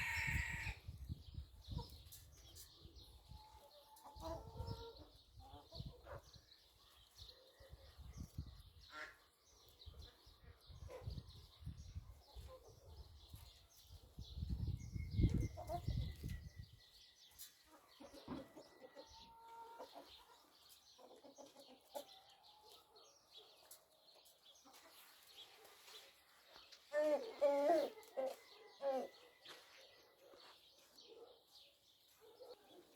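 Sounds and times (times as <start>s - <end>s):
chickens clucking: 1.3s - 7.2s, 8.0s - 13.6s, 14.4s - 16.7s, 17.4s - 22.9s, 23.6s - 29.6s.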